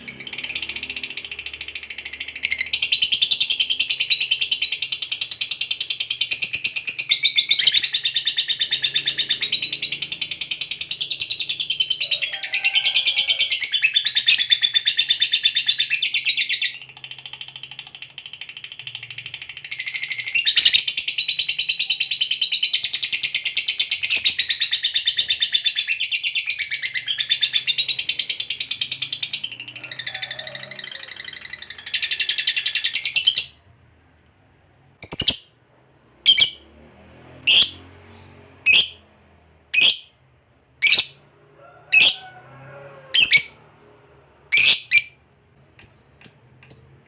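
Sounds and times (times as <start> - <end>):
lovebird chattering trill: 35.0 - 35.5, 36.3 - 36.6, 39.8 - 40.1, 44.5 - 45.2
bird twittering: 36.3 - 36.6, 44.5 - 45.2.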